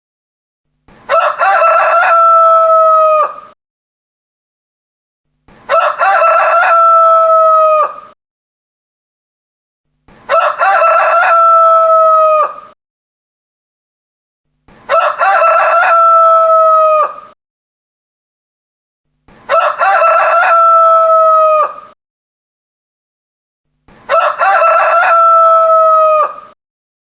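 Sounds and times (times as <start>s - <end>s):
rooster crowing: 1.1s - 3.6s, 5.7s - 8.2s, 10.3s - 12.8s, 14.9s - 17.4s, 19.5s - 22.0s, 24.1s - 26.6s.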